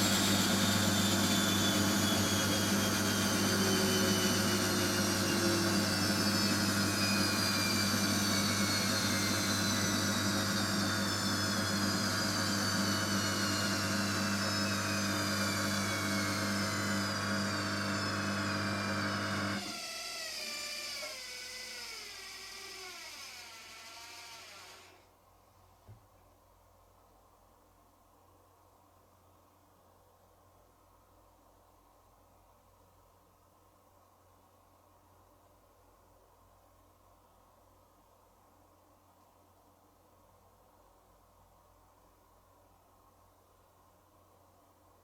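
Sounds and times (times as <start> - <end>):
washing machine motor whine: 0.0 - 25.0.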